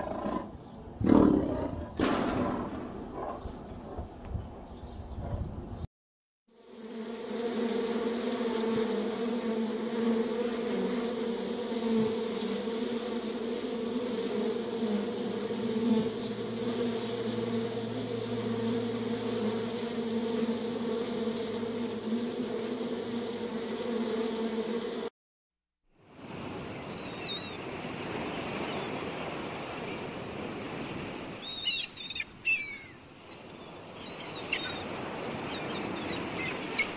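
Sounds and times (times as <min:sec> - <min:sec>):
honeybees buzzing: 0:06.6 - 0:25.1, 0:26.2 - 0:36.9.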